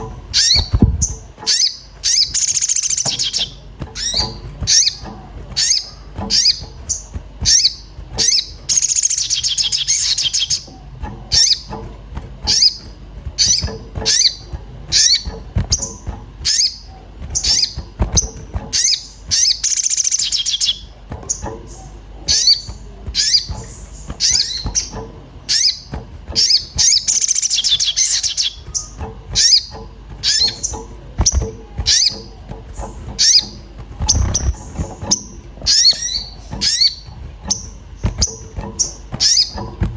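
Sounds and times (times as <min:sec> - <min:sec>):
bird rapid trilling: 0:00.0 - 0:39.9
bird sharp high chirps: 0:00.3 - 0:05.0, 0:05.6 - 0:10.7, 0:12.5 - 0:21.4, 0:25.5 - 0:32.3, 0:33.1 - 0:39.6.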